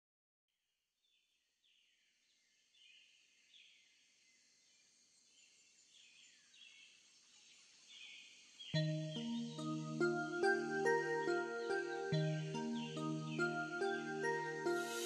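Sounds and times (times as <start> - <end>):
high hiss: 14.6 - 15.0.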